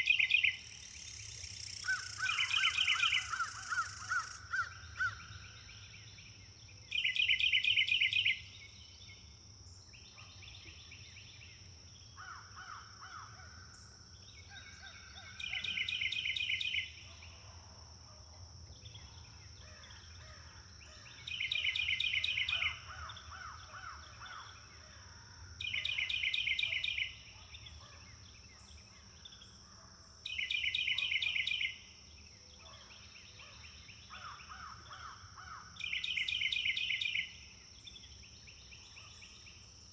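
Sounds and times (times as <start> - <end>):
other birds calling: 1.6 - 5.2.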